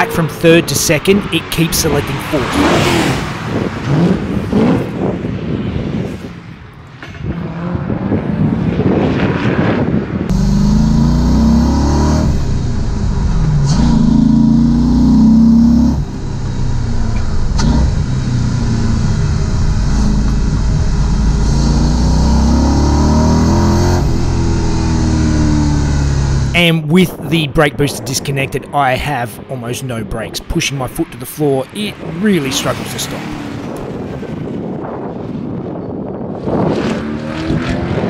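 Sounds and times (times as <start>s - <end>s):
car engine revving: 0.0s - 5.2s, 10.3s - 26.7s, 30.2s - 34.6s.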